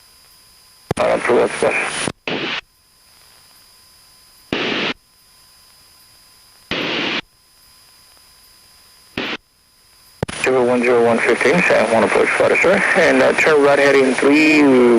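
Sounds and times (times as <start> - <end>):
faint steady hiss: 0.0 - 14.9
radio static bursts: 0.9 - 2.7, 4.5 - 5.0, 6.7 - 7.3, 9.2 - 9.5, 10.2 - 14.9.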